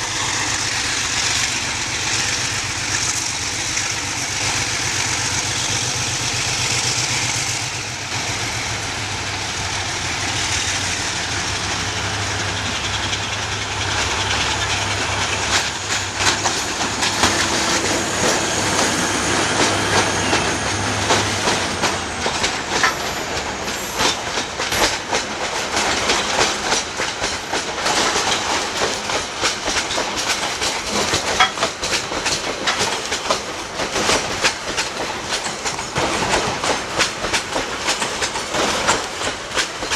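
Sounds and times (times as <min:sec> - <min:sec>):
locomotive engine hum: 0:00.0 - 0:39.9
wheels clattering over rail joints: 0:09.2 - 0:39.9.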